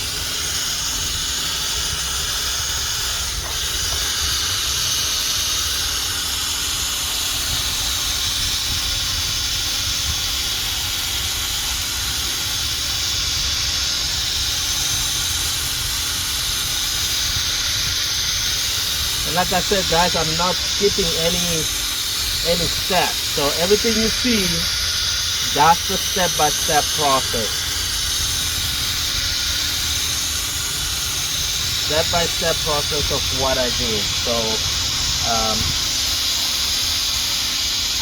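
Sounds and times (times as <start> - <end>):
power drill whirring: 0.0 - 38.0.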